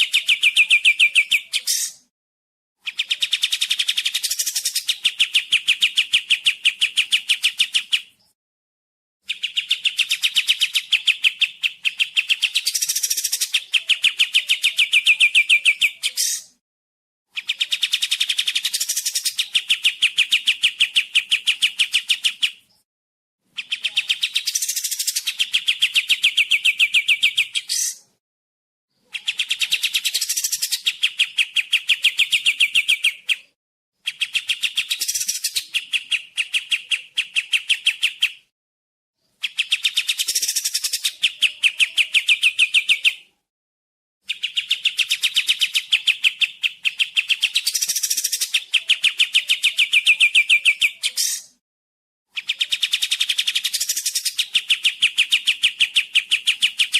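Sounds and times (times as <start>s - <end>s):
songbird fast high trill: 50.4s - 51.6s.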